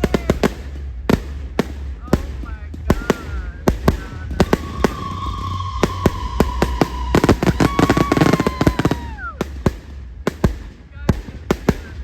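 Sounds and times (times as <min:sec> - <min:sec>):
firework bangs: 0:00.0 - 0:12.0
rapid firework crackling: 0:00.0 - 0:12.0
descending whistling tone: 0:04.4 - 0:09.5.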